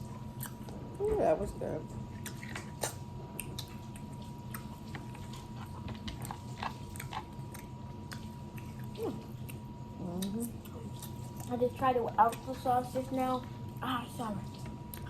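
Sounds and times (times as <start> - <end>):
chewing with wet smacks: 1.9 - 15.0.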